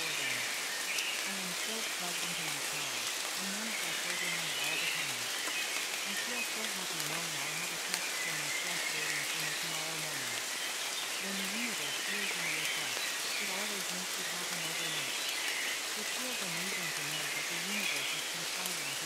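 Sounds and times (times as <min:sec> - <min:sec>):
faint low voice speaking: 0:00.0 - 0:00.5, 0:01.3 - 0:05.3, 0:06.0 - 0:10.5, 0:11.2 - 0:15.2, 0:16.0 - 0:19.0
steady rain: 0:00.0 - 0:19.0.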